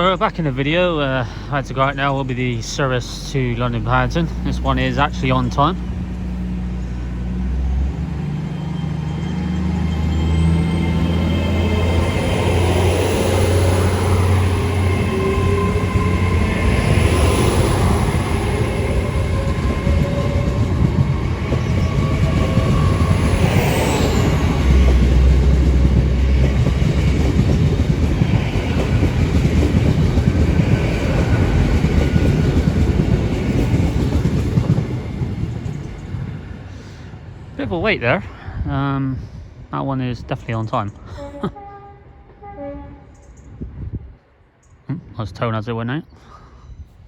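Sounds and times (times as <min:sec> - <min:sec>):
diesel train engines under load: 0:00.0 - 0:47.0.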